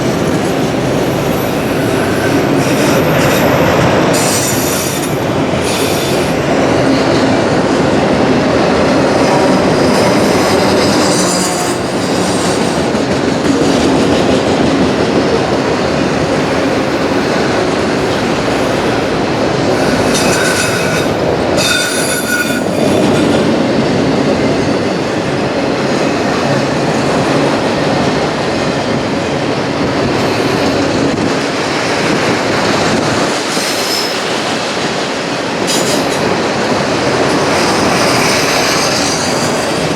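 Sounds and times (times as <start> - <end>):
train wheel squeals: 0.0 - 6.5, 9.1 - 12.9, 19.6 - 23.6, 33.3 - 34.8, 35.6 - 36.4, 37.0 - 39.9
freight train rolling past: 0.0 - 39.9.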